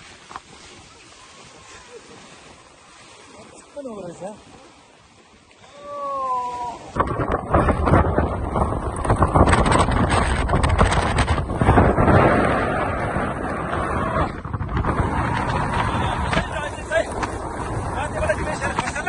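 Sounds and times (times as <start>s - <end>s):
strong wind buffeting microphone: 6.2s - 19.0s.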